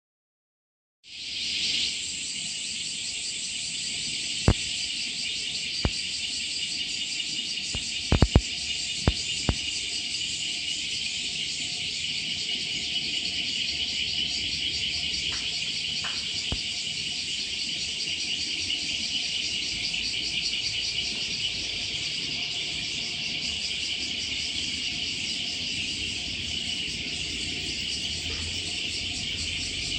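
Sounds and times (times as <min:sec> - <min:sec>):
insects droning: 0:01.1 - 0:29.9
sharp clicks: 0:04.5 - 0:04.7, 0:07.7 - 0:08.4, 0:09.0 - 0:09.7.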